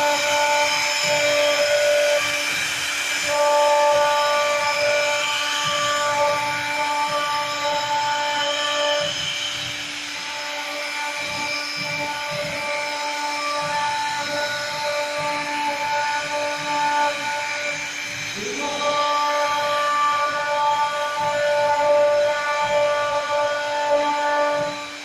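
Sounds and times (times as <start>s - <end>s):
router motors whining: 0.0s - 25.0s
steady machine hiss: 0.0s - 25.0s.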